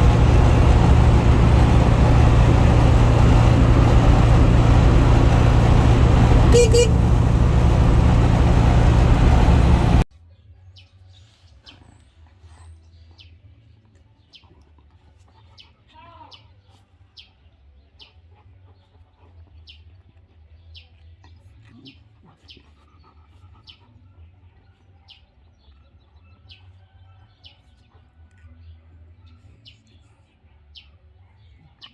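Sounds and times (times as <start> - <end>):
car engine running: 0.0 - 10.0
low steady hum: 0.0 - 10.1.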